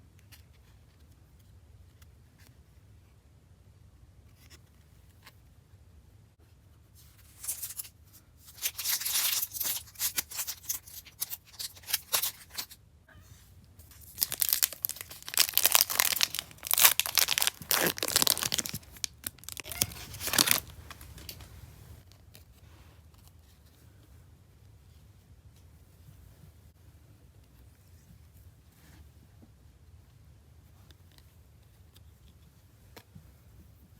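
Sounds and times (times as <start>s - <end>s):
faint handling: 6.9s - 24.1s
plastic wrapper tearing and crinkling: 7.4s - 7.9s, 8.5s - 12.8s, 13.9s - 21.5s.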